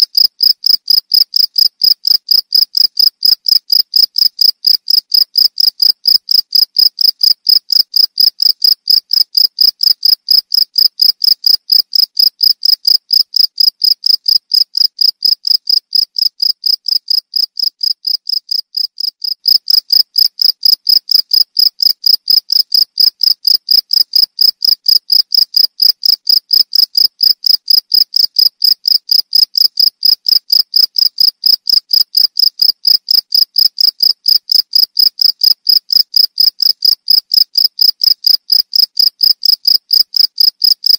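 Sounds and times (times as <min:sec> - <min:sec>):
cricket chirping: 0:00.1 - 0:40.9.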